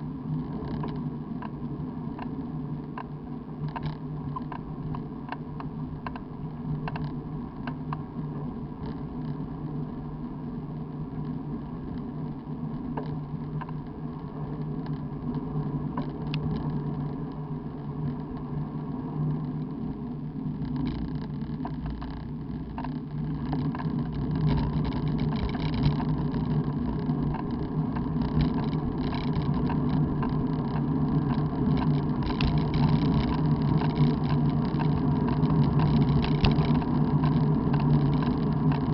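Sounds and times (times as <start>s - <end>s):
road noise: 0.0s - 38.9s.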